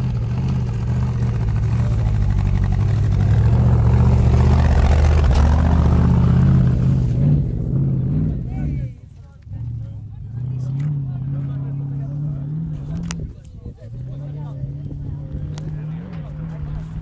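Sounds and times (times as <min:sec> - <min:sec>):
engine working hard: 0:00.0 - 0:17.0.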